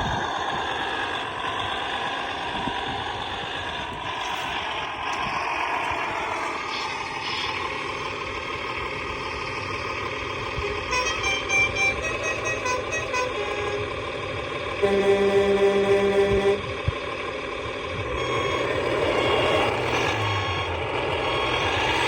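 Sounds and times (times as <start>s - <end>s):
simulated truck engine running: 0.0s - 22.0s
short horn toots: 10.6s - 13.9s, 14.8s - 16.7s.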